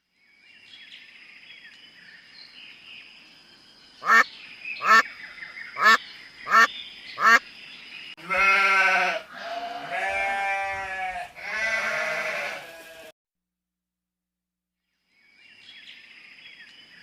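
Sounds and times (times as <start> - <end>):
duck quacks: 4.0 - 4.2, 4.8 - 5.0, 5.8 - 7.4
sheep or goat bleating: 8.2 - 13.1.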